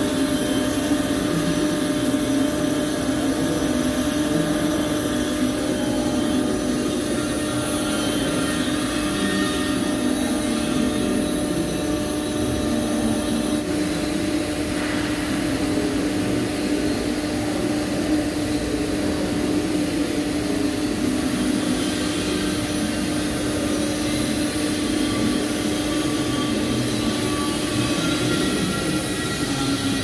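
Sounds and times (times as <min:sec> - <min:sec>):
machine hum with hiss: 0:00.0 - 0:30.0.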